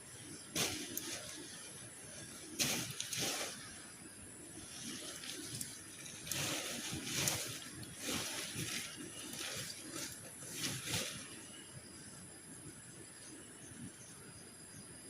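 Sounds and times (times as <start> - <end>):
water sloshing and trickling: 0.1 - 14.0.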